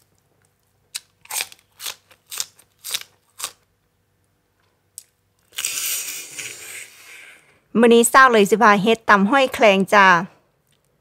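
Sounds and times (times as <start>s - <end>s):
crunchy chewing of raw vegetables: 0.0s - 3.7s, 4.9s - 7.0s
loud hissing noise: 5.6s - 7.6s.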